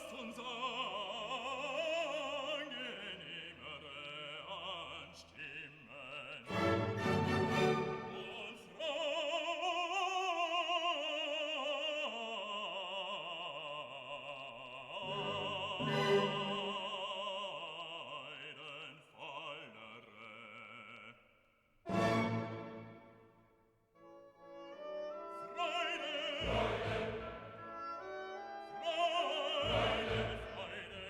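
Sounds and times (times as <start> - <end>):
operatic singing high voice: 0.0 - 21.1, 24.8 - 31.0
classical accompaniment: 6.5 - 8.6, 15.0 - 17.1, 21.9 - 23.4, 24.0 - 31.0.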